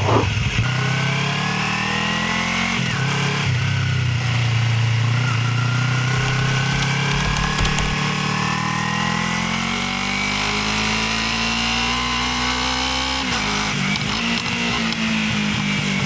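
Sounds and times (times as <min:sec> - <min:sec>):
motorcycle engine pulling: 0:06.0 - 0:08.8.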